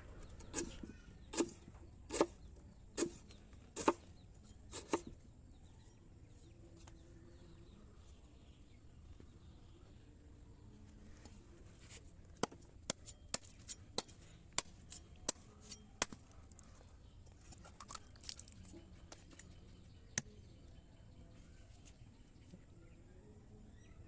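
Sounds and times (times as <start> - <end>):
cleaver chopping: 0.5 - 2.4, 3.0 - 3.2, 3.8 - 4.1, 4.7 - 5.1, 12.4 - 16.6.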